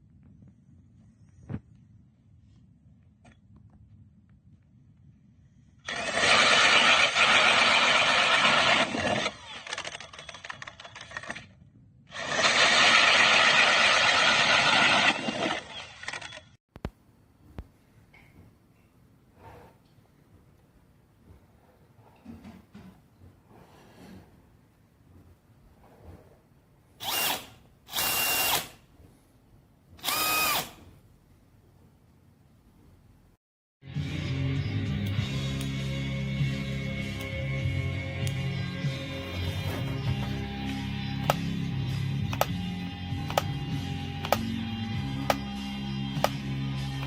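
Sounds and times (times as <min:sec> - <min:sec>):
cordless drill spinning: 0:05.8 - 0:11.4, 0:12.1 - 0:16.5, 0:27.0 - 0:28.8, 0:30.0 - 0:30.9, 0:39.1 - 0:45.6
click: 0:42.3 - 0:42.6, 0:43.3 - 0:43.5, 0:44.2 - 0:44.5.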